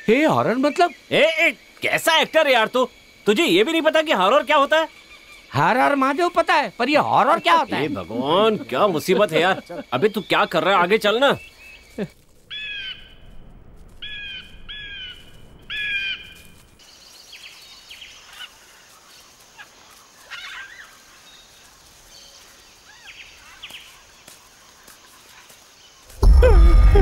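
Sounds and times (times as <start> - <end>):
steady high hiss: 0.0 - 27.0
soft bird chirps: 4.4 - 6.2, 6.9 - 26.8
bird harsh calls: 11.3 - 13.2, 14.0 - 16.5.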